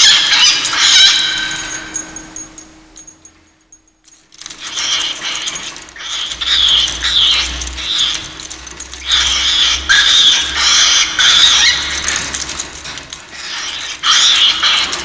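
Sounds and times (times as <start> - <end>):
cockatiel screeching: 0.0 - 2.2, 4.6 - 8.4, 9.0 - 12.6, 13.3 - 15.0.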